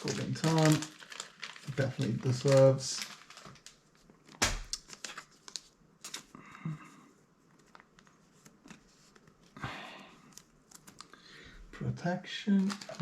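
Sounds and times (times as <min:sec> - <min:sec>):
cards clicking and rustling: 0:12.5 - 0:13.0.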